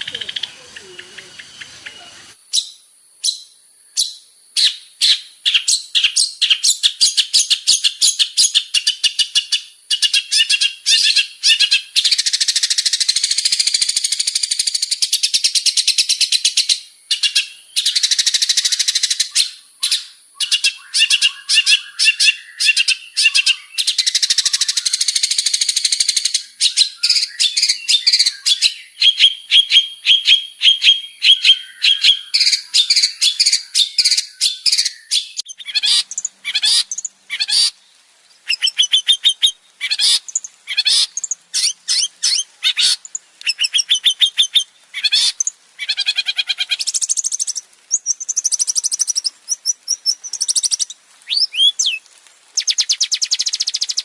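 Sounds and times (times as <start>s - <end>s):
bird chattering: 0.0s - 2.7s, 31.3s - 37.7s.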